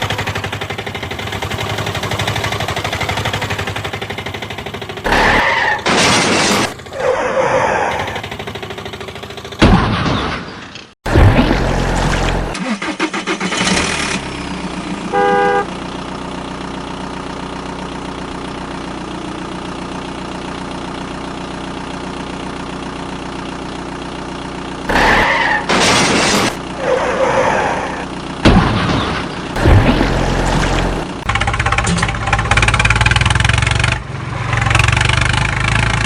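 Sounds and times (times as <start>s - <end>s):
truck engine running: 0.0s - 36.0s
horn honk: 15.1s - 15.8s
loud noise bursts: 29.6s - 31.2s.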